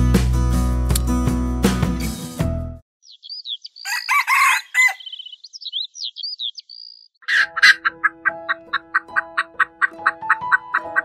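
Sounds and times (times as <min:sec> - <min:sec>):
light plucked background music: 0:00.0 - 0:02.8, 0:07.2 - 0:11.0
high bird chirps: 0:03.0 - 0:07.9
chicken squawking: 0:03.8 - 0:05.3, 0:07.2 - 0:11.0.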